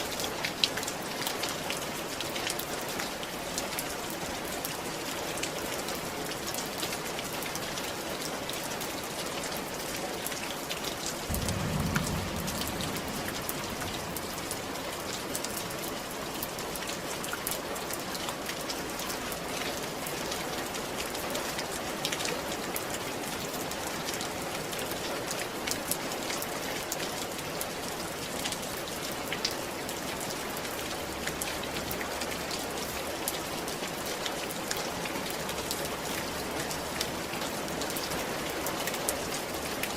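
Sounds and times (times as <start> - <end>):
rain falling on a roof: 0.0 - 39.9
sharp drop hits: 11.3 - 15.1
low rumble: 11.3 - 15.4.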